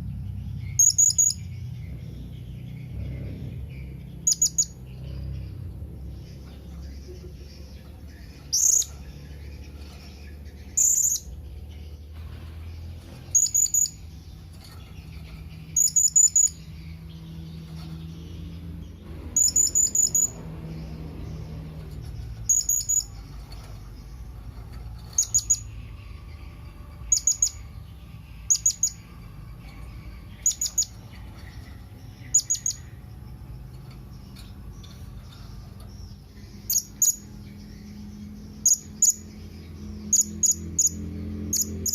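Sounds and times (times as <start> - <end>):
parrot high chirps: 0.8 - 1.4, 13.3 - 14.0, 15.8 - 16.6, 19.4 - 20.4, 25.2 - 25.8.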